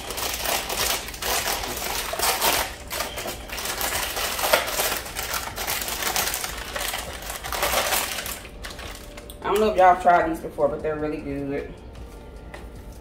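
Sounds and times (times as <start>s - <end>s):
plastic packet crinkling: 0.0s - 9.8s.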